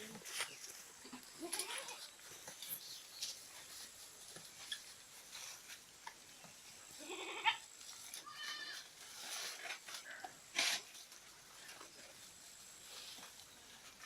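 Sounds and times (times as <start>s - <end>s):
goats bleating: 7.0s - 7.6s, 8.2s - 8.9s.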